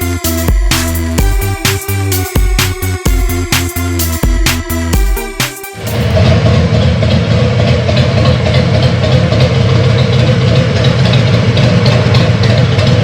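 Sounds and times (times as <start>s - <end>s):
motorcycle engine running: 5.8s - 13.0s.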